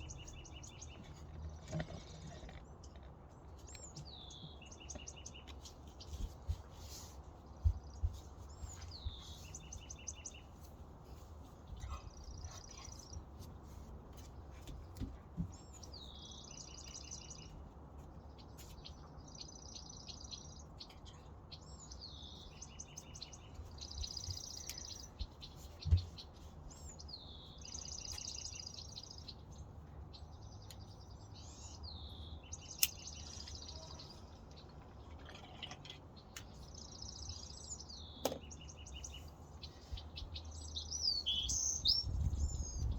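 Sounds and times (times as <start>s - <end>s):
birds chirping: 0.0s - 42.9s
bird whistle and trill: 41.0s - 42.9s.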